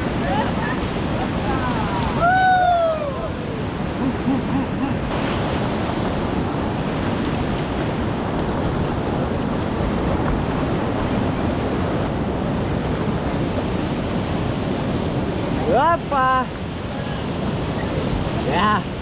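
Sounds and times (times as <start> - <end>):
whitewater rushing: 0.0 - 19.0.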